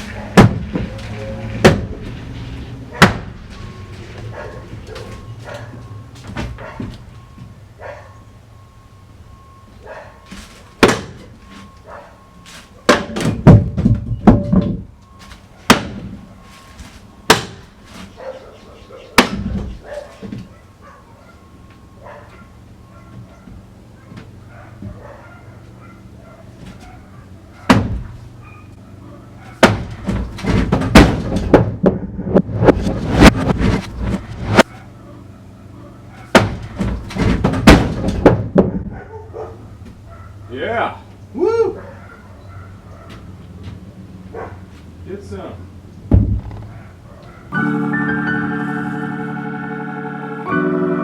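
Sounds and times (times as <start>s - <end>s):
boards being struck and knocked loose: 0.3s - 2.4s, 3.0s - 3.6s, 10.8s - 11.4s, 12.9s - 14.9s, 15.7s - 16.2s, 17.3s - 18.1s, 19.2s - 20.5s, 27.7s - 28.2s, 29.6s - 34.6s, 36.3s - 38.9s, 46.1s - 46.7s
wall material crashing down: 0.3s - 2.4s, 29.6s - 34.7s, 36.4s - 38.8s.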